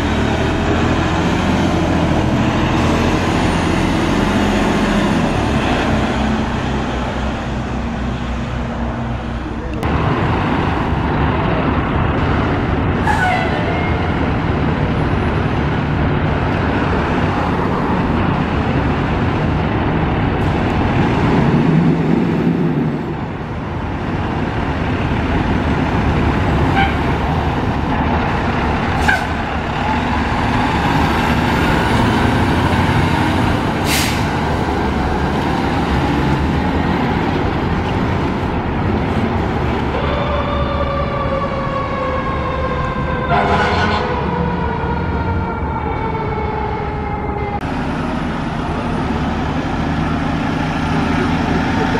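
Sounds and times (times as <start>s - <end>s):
diesel engine rumbling: 0.0s - 51.9s
air brakes hissing: 33.8s - 34.4s.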